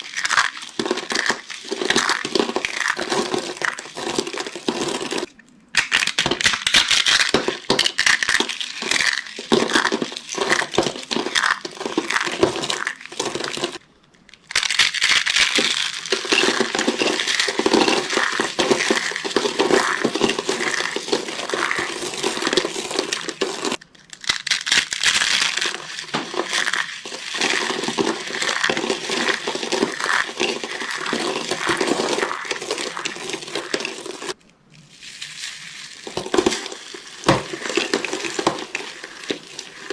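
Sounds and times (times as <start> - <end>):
dry soap crunching and crackling: 0.0 - 39.9.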